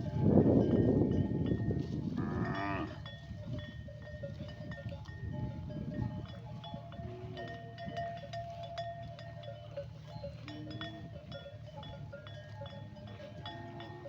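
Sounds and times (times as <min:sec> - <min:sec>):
livestock bells clinking: 0:00.0 - 0:14.0.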